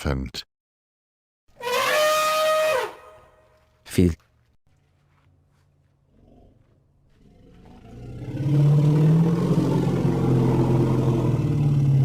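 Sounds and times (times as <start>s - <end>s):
elephant calling: 1.6s - 3.2s.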